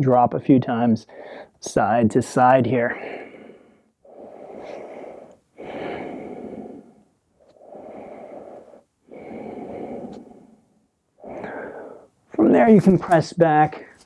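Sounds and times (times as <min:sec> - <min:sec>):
person breathing deeply: 0:01.1 - 0:01.6, 0:02.9 - 0:12.2.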